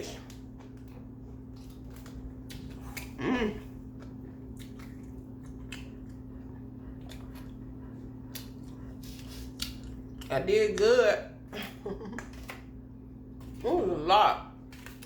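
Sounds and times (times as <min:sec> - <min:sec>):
chewing mouth sounds: 0:00.0 - 0:10.8
electrical hum: 0:00.0 - 0:15.0
low voiced sound: 0:03.2 - 0:03.8.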